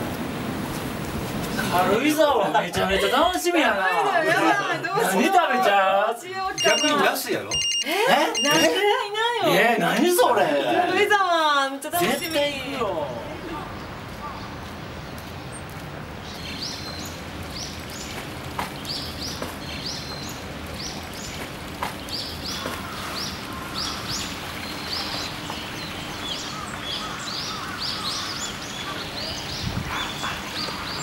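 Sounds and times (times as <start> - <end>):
steady outdoor hiss: 0.0 - 31.0
small birds chirping: 6.6 - 7.8, 13.5 - 31.0.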